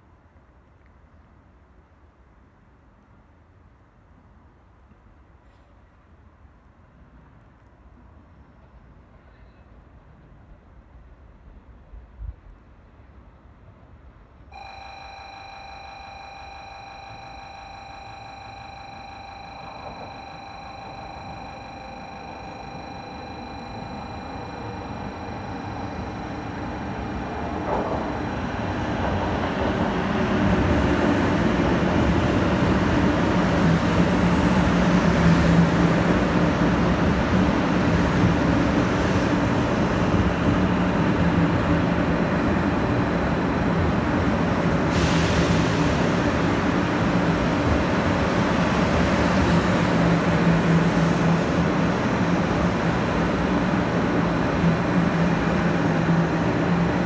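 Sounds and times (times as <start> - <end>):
train wheels rumbling on rail: 23.0 - 57.0.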